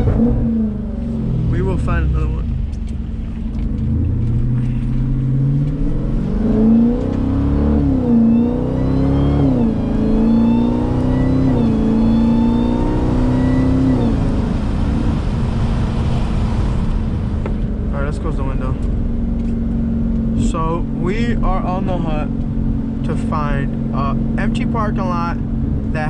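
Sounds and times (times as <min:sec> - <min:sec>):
car engine accelerating hard: 0:00.0 - 0:26.0
supercharger whine: 0:00.0 - 0:26.0.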